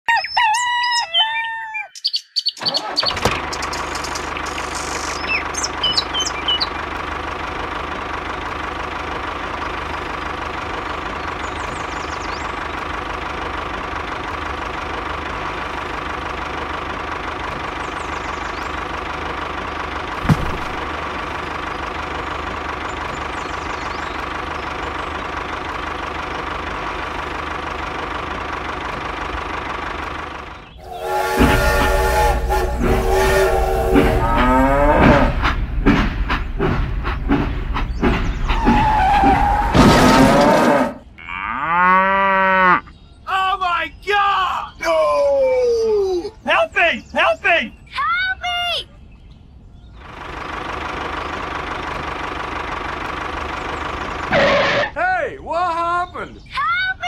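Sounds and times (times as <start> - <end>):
tractor engine running: 2.6 - 40.8, 49.9 - 56.7
thump: 20.2 - 20.9.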